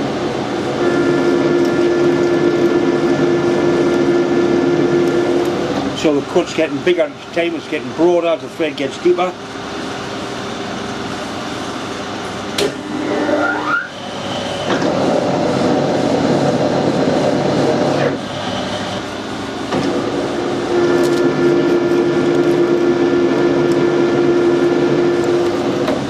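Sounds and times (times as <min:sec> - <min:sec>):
short rising whine: 0:00.8 - 0:05.5, 0:12.6 - 0:16.2.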